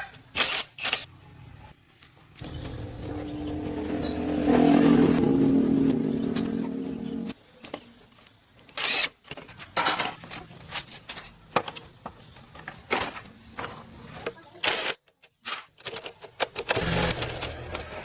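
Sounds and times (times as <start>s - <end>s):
bulldozer engine running: 2.4s - 7.3s.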